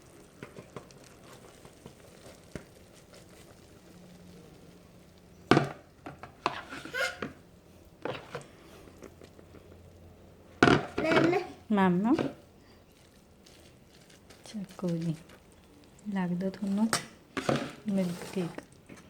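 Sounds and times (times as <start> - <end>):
spoon scraping a bowl: 6.4 - 7.4, 16.6 - 18.7.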